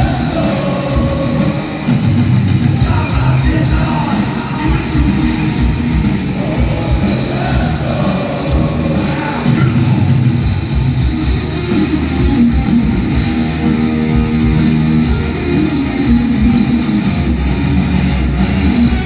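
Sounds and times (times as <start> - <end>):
pounding drums: 0.0 - 13.6
bass guitar: 0.0 - 19.0
distorted electric guitars: 0.0 - 19.0.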